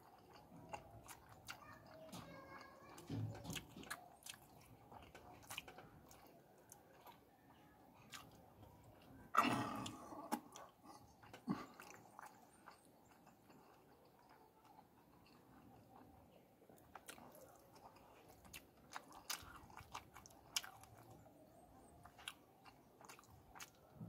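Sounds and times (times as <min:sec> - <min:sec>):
person chewing with wet mouth clicks: 0:00.0 - 0:02.0, 0:03.5 - 0:23.9.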